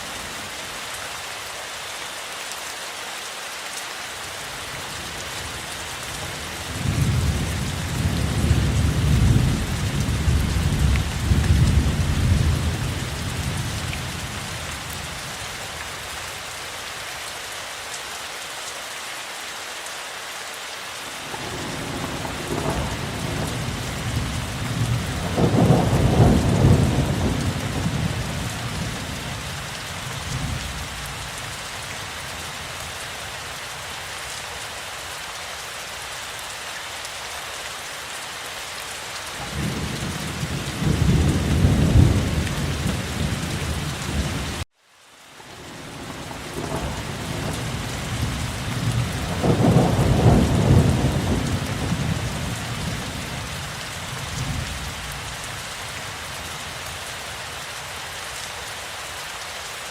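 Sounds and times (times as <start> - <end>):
steady rain falling: 0.0 - 59.9
rolling thunder: 21.4 - 28.9, 46.0 - 53.1.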